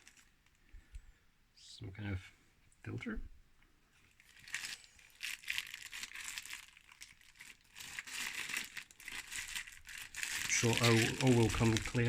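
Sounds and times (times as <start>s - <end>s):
plastic packaging crinkling: 0.0s - 0.3s, 4.1s - 12.0s.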